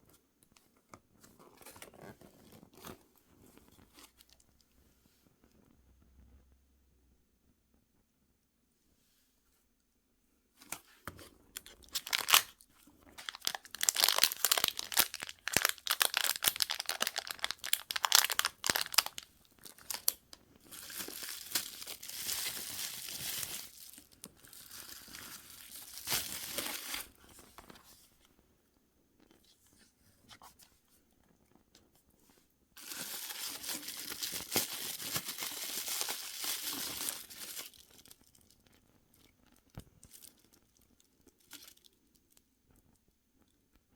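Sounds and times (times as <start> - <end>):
packaging crinkling: 10.6 - 27.2, 32.8 - 38.4.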